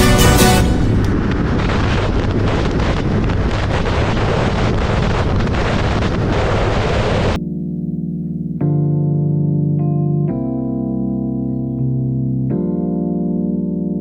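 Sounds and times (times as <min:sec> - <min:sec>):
electric piano music: 0:00.0 - 0:01.2, 0:07.4 - 0:14.0
wind noise on microphone: 0:00.0 - 0:07.4.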